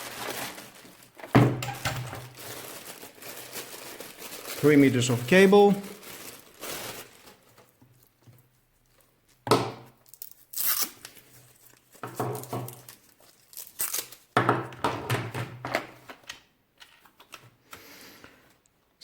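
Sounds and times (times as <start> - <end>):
plastic packaging crinkling and tearing: 0.0 - 14.4.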